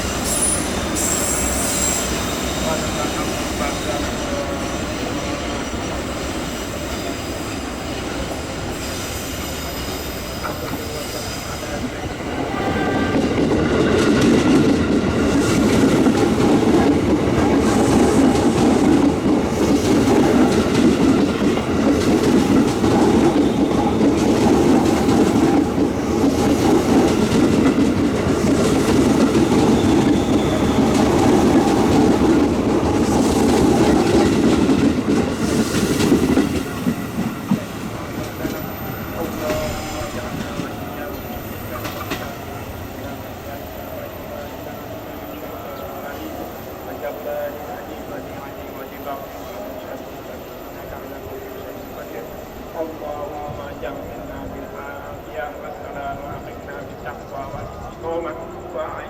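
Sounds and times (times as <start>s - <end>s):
train wheels clickety-clack: 0.0s - 45.0s.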